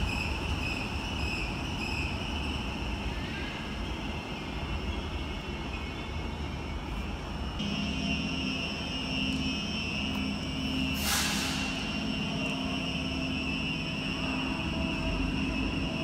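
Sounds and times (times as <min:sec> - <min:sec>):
train high-pitched whine: 0:00.0 - 0:16.0
low hum: 0:07.6 - 0:16.0
burst of hiss: 0:11.0 - 0:11.9.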